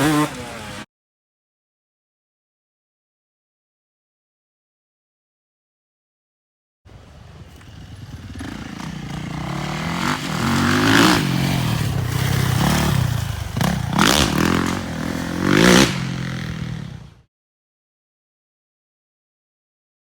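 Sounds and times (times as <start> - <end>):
motorcycle engine revving: 0.0 - 0.9, 6.9 - 17.3.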